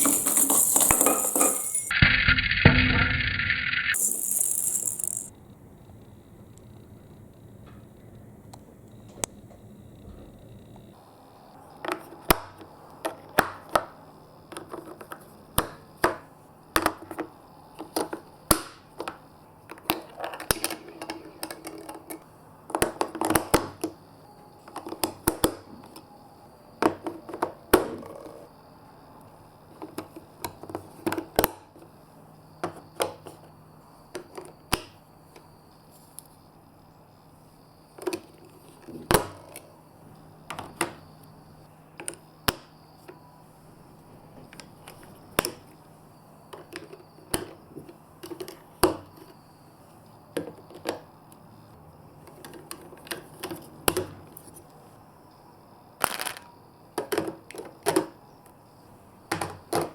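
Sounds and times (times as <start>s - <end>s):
marbles clacking on plastic pieces: 0.0s - 1.9s, 3.9s - 5.3s
marbles rattling: 0.0s - 1.9s, 3.9s - 5.3s.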